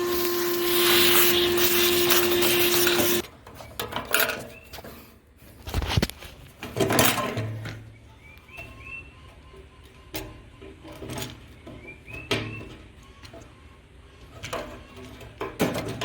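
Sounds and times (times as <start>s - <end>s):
machine humming: 0.0s - 3.2s.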